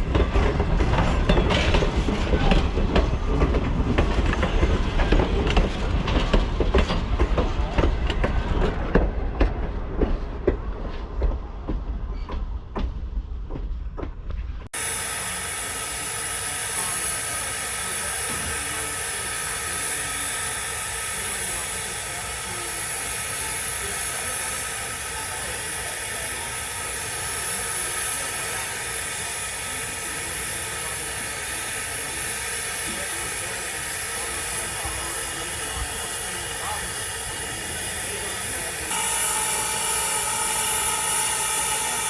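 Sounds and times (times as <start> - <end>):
steam locomotive hissing: 0.0 - 9.6, 14.8 - 42.0
train cars rumbling past: 0.0 - 24.0.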